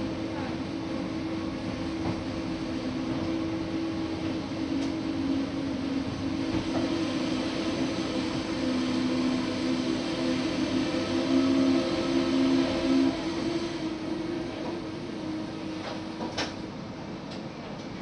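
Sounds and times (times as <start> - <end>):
low hum: 0.0 - 16.2
train rolling: 0.0 - 18.0.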